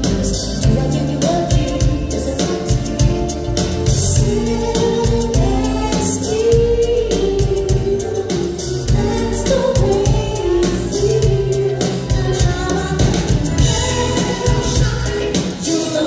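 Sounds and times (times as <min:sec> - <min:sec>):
steady drum beat: 0:00.0 - 0:16.0
voices singing in harmony: 0:04.0 - 0:16.0.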